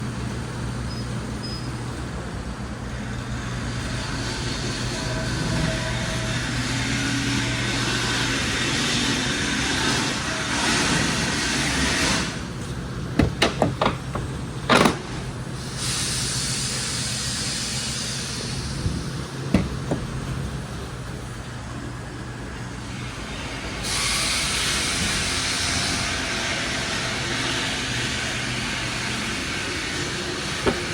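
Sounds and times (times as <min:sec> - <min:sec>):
sharp knocks or clicks: 0:13.2 - 0:15.0
car engine running: 0:18.4 - 0:21.2.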